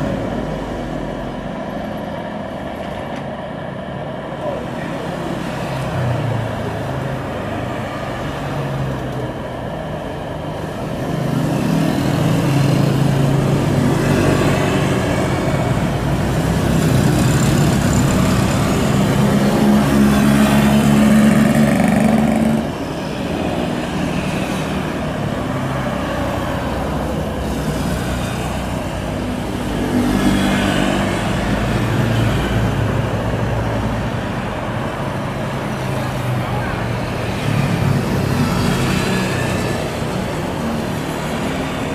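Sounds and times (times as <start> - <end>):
jet engines rumbling: 0.0 - 41.9.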